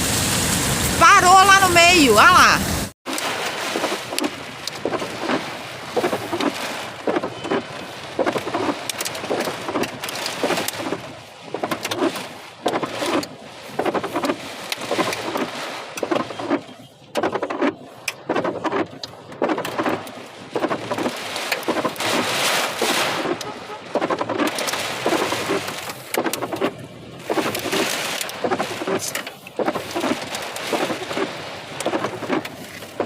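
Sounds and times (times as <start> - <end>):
rain rushing: 0.0 - 33.0.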